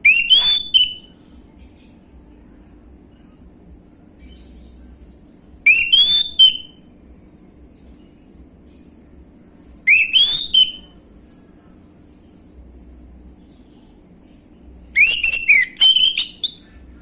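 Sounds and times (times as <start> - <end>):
thrush singing whistled notes: 0.0 - 1.3, 5.6 - 8.3, 9.2 - 10.9, 14.2 - 16.9.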